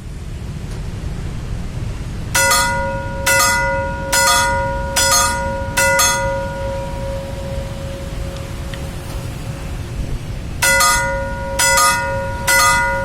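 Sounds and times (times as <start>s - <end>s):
low rumble: 0.0s - 13.0s
level crossing bell ringing: 2.4s - 8.8s, 10.6s - 13.0s.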